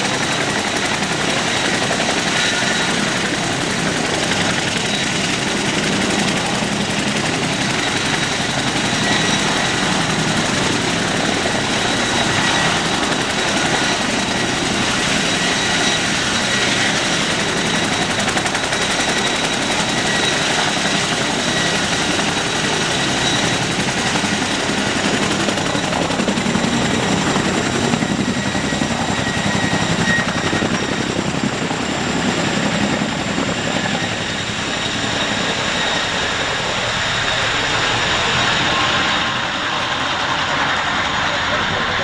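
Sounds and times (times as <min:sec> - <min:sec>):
helicopter turbine and rotor: 0:00.0 - 0:42.0.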